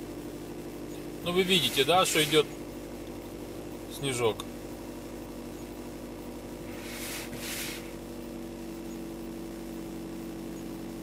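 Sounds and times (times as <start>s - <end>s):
car engine idling: 0.0s - 11.0s
short burst of hiss: 6.8s - 7.9s.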